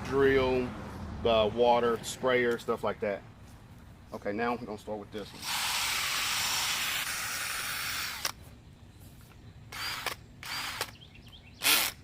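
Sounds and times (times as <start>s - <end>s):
water sprayer hissing: 5.3s - 8.0s.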